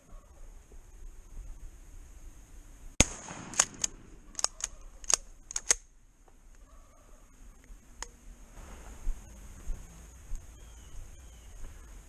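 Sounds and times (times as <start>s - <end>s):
sharp clicks from shotgun handling: 3.4s - 5.9s.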